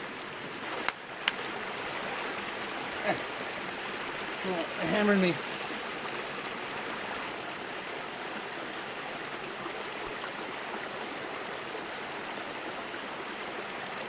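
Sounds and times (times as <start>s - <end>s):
creek water running: 0.0s - 14.0s.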